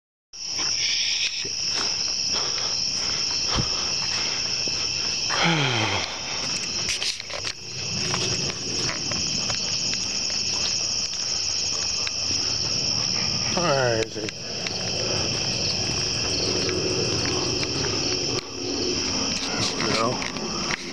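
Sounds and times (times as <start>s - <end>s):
crickets and insects chirring: 0.4s - 20.9s.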